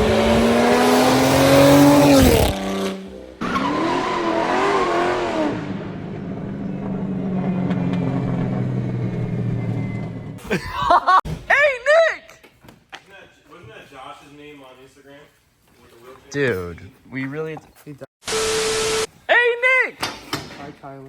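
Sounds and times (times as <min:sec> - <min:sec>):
car engine revving and idling: 0:00.0 - 0:10.4.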